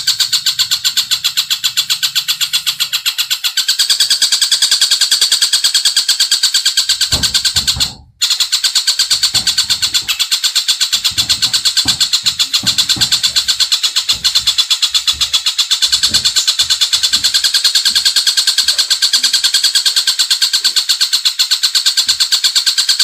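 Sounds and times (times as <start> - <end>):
high-pitched bird trill: 0.0 - 23.0
low thumps: 6.9 - 8.2, 9.0 - 10.2, 10.9 - 18.7.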